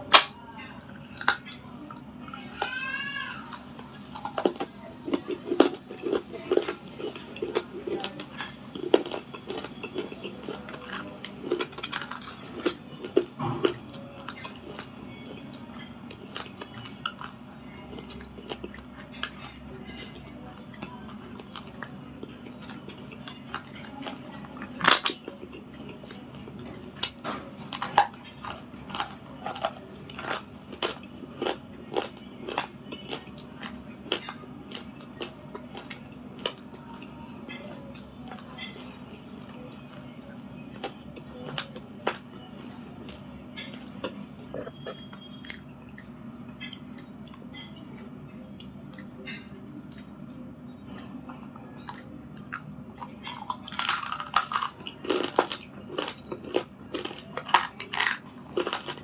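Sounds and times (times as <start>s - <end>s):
crunchy chewing: 0.9s - 59.0s.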